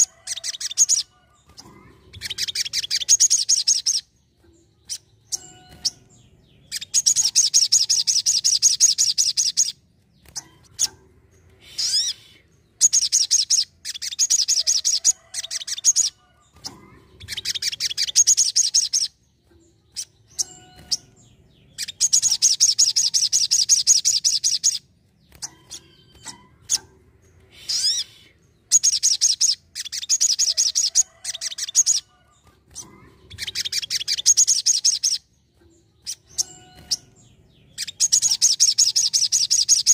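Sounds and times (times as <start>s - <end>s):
sunbird singing high trills: 11.6s - 15.0s.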